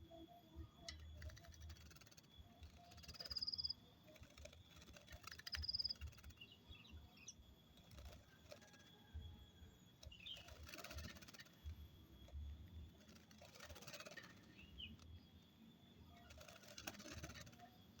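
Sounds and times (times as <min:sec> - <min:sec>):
bird wings fluttering: 0:01.0 - 0:06.5, 0:07.7 - 0:09.3, 0:10.0 - 0:15.2, 0:16.1 - 0:17.8.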